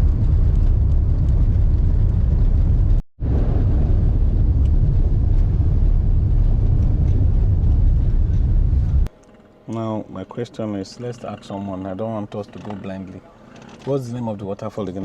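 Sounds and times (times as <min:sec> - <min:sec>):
car engine rumble: 0:00.0 - 0:09.2
road noise: 0:00.0 - 0:15.0.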